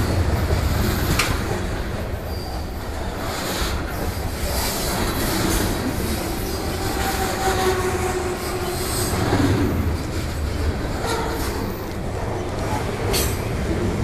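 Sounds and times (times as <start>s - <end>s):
freight train wheels rumbling: 0.0s - 14.0s
wheel squeal: 2.2s - 3.1s.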